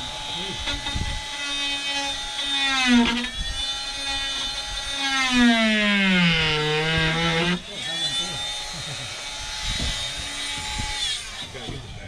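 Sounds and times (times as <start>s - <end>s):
power tool motor whining: 0.0s - 12.0s.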